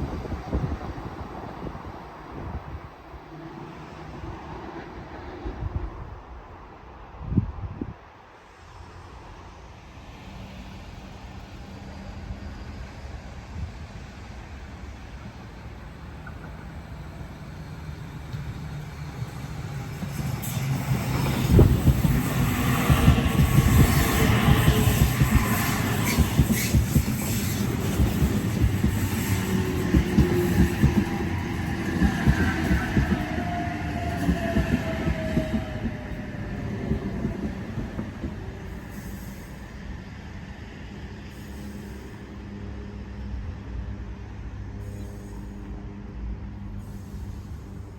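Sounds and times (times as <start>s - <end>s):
train rumble: 0.0s - 47.9s
train wheels thumping: 20.0s - 38.8s.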